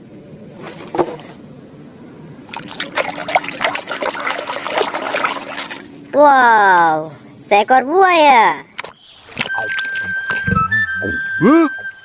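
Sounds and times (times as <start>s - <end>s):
water trickling and splashing: 2.4s - 7.0s, 8.8s - 10.5s.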